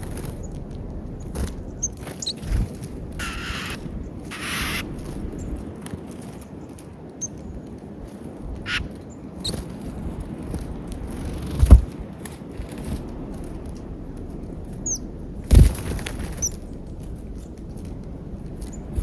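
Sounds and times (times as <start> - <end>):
low steady rumble: 0.0 - 19.0
small birds chirping: 0.0 - 19.0
loud thumps: 13.7 - 17.4.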